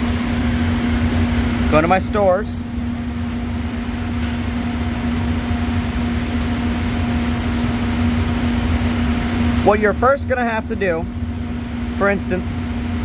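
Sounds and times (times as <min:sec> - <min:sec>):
shop machinery drone: 0:00.0 - 0:13.0.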